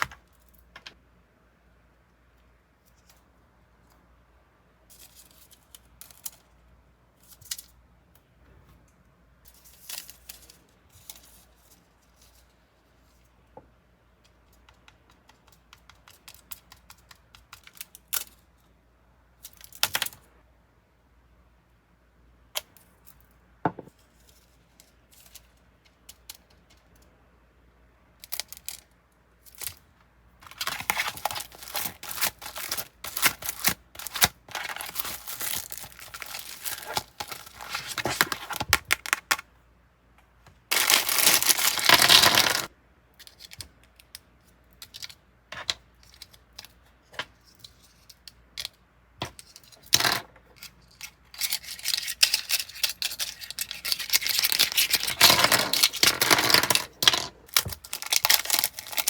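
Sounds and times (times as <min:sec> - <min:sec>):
plastic packaging crinkling and tearing: 0:30.4 - 0:39.4, 0:40.7 - 0:42.7, 0:51.3 - 0:56.2, 0:57.5 - 0:59.0.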